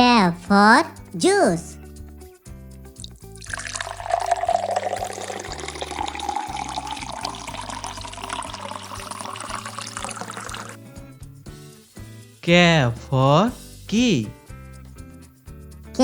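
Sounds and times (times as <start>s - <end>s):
liquid pouring into a glass: 3.0s - 10.9s.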